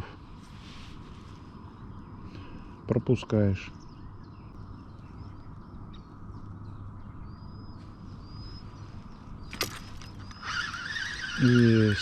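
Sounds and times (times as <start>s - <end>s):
steady low rumble: 3.6s - 10.2s.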